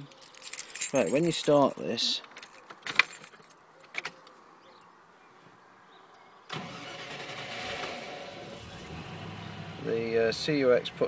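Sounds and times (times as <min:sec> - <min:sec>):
engine starting and fast idling: 0:06.5 - 0:09.9.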